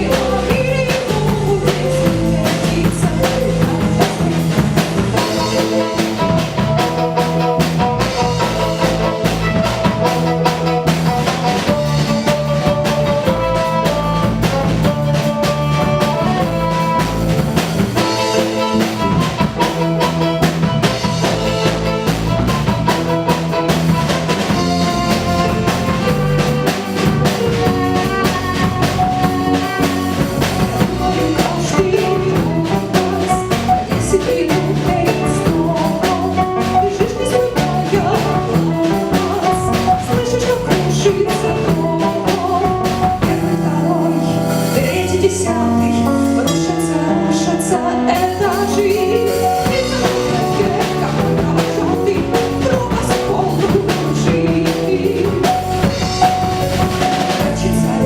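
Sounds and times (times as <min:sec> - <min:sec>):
drum kit beat: 0:00.0 - 0:58.0
live band playing: 0:00.0 - 0:58.0.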